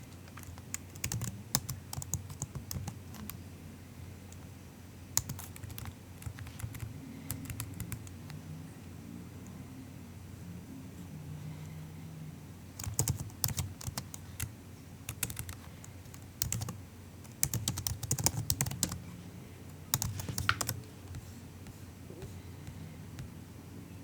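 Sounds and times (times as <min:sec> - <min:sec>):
soft keyboard keystrokes: 0:00.0 - 0:03.4, 0:05.2 - 0:08.4, 0:12.8 - 0:14.5, 0:15.1 - 0:19.0, 0:19.9 - 0:23.3.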